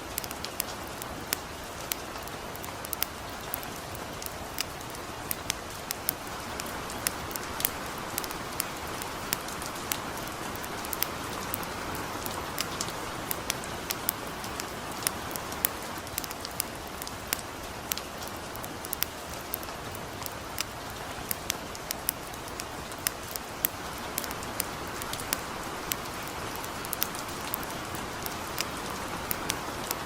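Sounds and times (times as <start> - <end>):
campfire crackling and popping: 0.0 - 30.0
light rain falling: 0.0 - 30.0.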